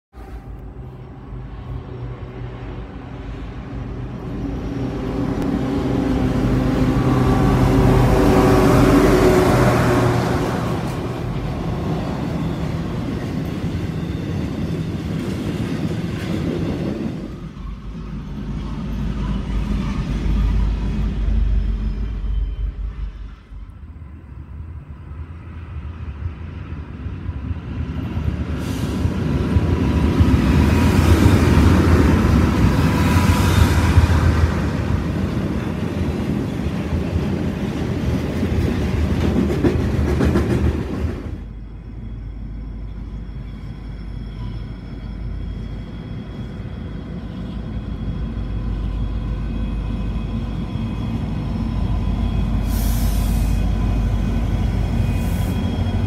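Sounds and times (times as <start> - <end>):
diesel locomotives droning: 0.1 - 56.0
freight cars rumbling and clattering: 27.1 - 56.0.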